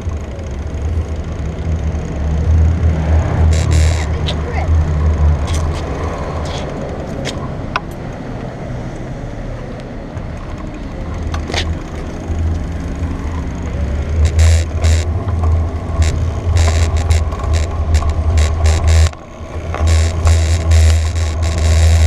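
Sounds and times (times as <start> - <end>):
bike rattling and clicking: 0.0 - 8.4, 10.2 - 22.0
wind and tyres rumbling: 0.0 - 22.0.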